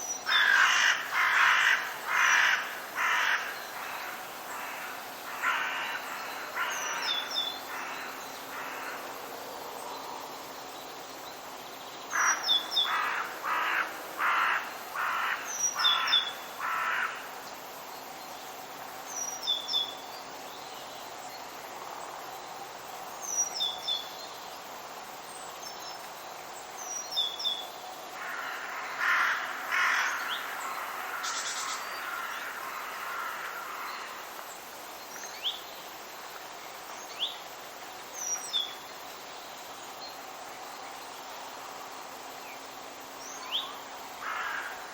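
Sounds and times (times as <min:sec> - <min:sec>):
background hiss: 0:00.0 - 0:44.9
crow cawing: 0:00.3 - 0:09.0, 0:12.2 - 0:17.2, 0:28.2 - 0:34.1, 0:44.2 - 0:44.9.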